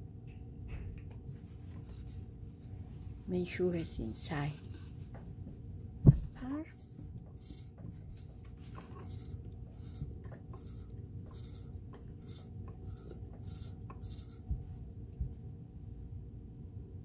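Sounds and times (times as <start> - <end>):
low thumps: 6.0 - 6.5
rhythmic rubbing strokes: 6.4 - 14.8.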